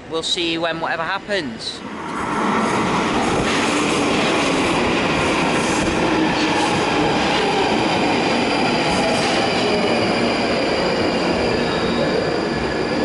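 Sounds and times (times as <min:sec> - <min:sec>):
underground train rumble: 0:00.0 - 0:13.0
wheels squealing on rails: 0:08.3 - 0:13.0.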